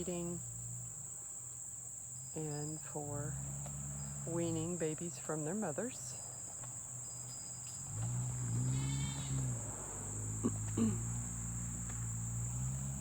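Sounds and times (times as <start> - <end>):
crickets and insects chirring: 0.0 - 13.0.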